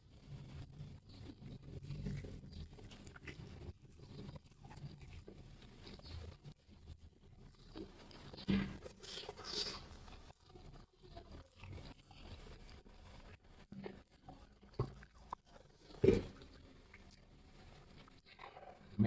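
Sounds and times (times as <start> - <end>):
chewing: 0.0 - 19.0.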